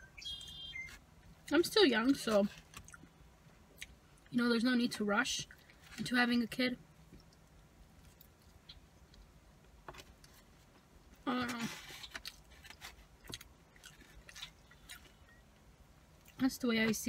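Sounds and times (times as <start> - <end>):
chewing fries: 11.6 - 15.4.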